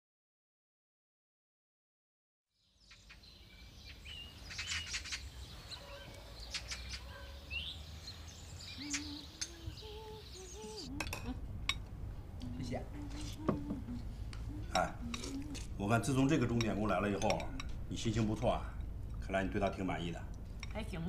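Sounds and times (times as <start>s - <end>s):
birds chirping and calling: 2.7s - 19.8s
low steady rumble: 9.5s - 21.0s.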